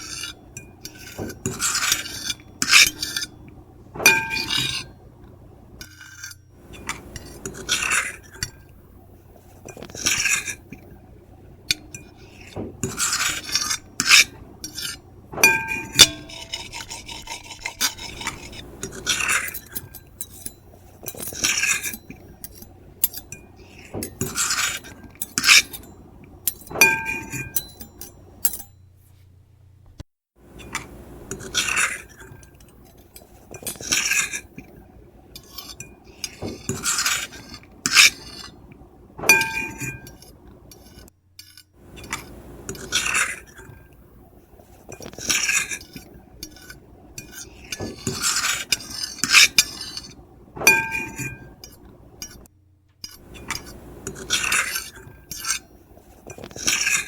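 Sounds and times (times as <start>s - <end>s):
fork and knife scraping plate: 0.0s - 3.4s, 4.0s - 5.0s, 5.8s - 8.7s, 9.4s - 10.8s, 11.7s - 28.7s, 30.5s - 34.7s, 35.4s - 43.9s, 44.6s - 57.0s
plate ringing: 4.0s - 4.9s, 15.4s - 17.0s, 26.6s - 28.8s, 39.2s - 40.2s, 50.6s - 51.6s.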